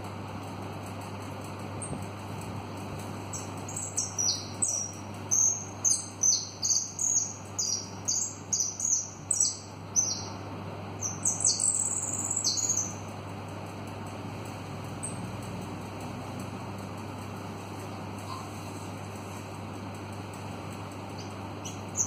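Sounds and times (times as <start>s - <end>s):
steady low hum: 0.0s - 22.0s
bird singing high chirps: 3.3s - 10.4s, 11.0s - 13.0s.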